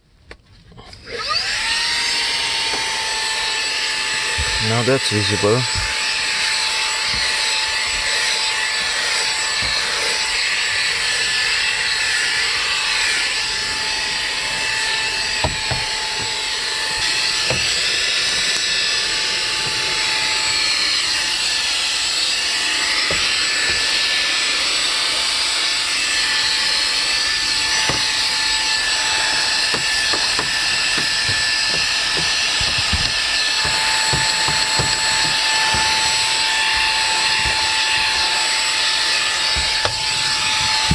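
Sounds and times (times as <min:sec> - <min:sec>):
handheld vacuum motor whine: 0:00.8 - 0:40.9
handling knocks and clicks: 0:04.4 - 0:08.3, 0:09.5 - 0:10.8, 0:14.0 - 0:20.7, 0:22.9 - 0:24.2, 0:27.0 - 0:40.9.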